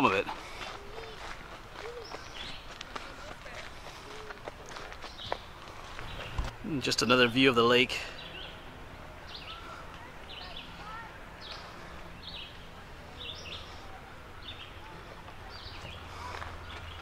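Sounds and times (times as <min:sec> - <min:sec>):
faint outdoor background noise: 0:00.0 - 0:17.0.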